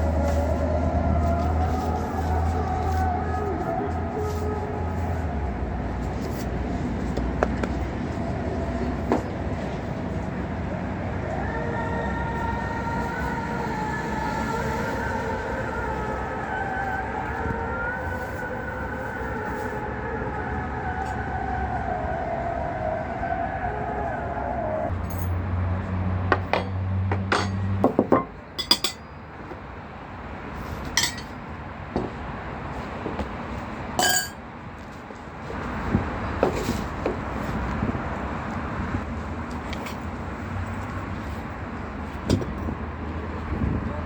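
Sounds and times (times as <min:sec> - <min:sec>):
glass and dishes clinking: 0:26.6 - 0:29.2, 0:31.0 - 0:31.3, 0:34.0 - 0:34.4.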